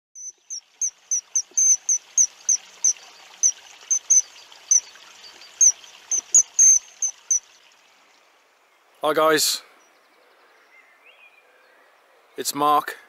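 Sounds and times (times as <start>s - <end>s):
small bird chirping: 0.2s - 7.8s
faint steady hiss: 0.2s - 13.0s.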